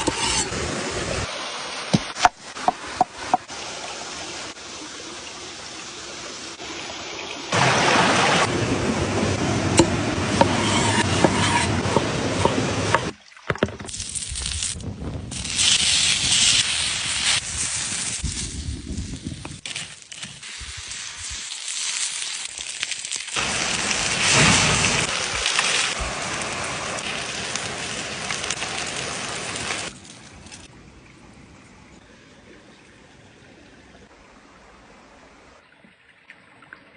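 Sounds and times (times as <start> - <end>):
food sizzling on hot stones: 0.0 - 0.8, 9.8 - 13.1, 13.9 - 30.7
wood fire crackling: 13.8 - 30.7.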